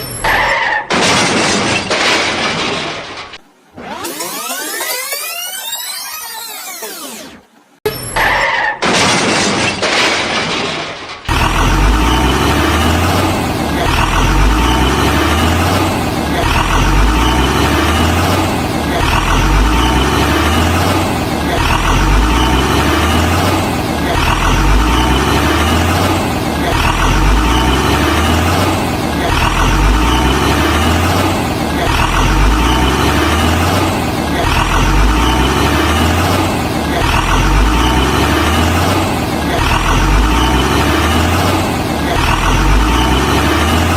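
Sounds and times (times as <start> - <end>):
truck engine revving: 11.3 - 43.9.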